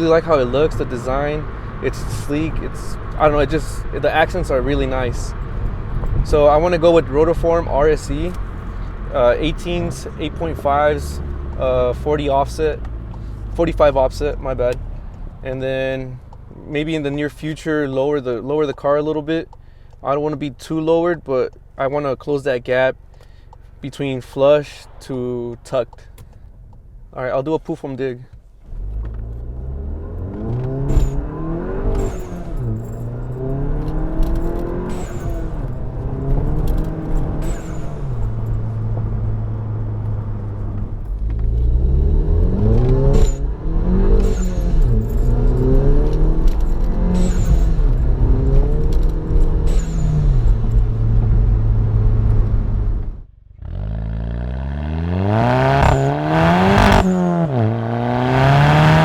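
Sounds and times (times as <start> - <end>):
car engine revving through gears: 0.0 - 15.4, 28.6 - 59.0.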